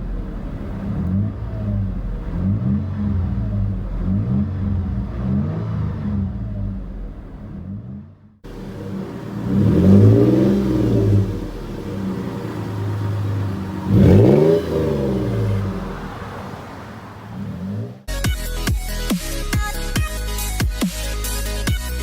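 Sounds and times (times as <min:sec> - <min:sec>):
engine revving and idling: 0:00.0 - 0:22.0
electronic music: 0:18.1 - 0:22.0.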